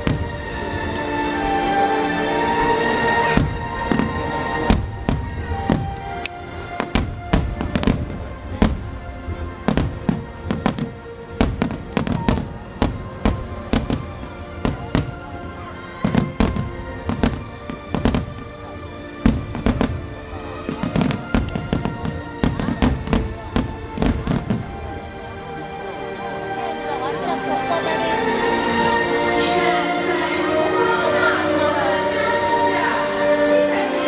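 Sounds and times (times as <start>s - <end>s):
fireworks bangs: 0.0s - 1.8s, 2.6s - 25.3s
music playing: 0.0s - 34.0s.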